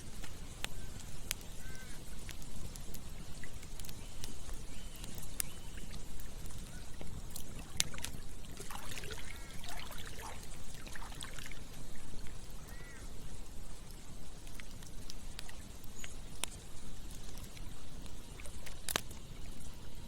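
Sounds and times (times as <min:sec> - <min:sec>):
campfire crackling and popping: 0:00.0 - 0:20.0
running water: 0:01.7 - 0:20.0.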